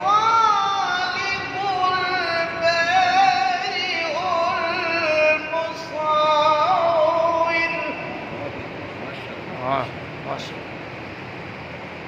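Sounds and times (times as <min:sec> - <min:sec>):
person reciting melodically: 0:00.0 - 0:08.5.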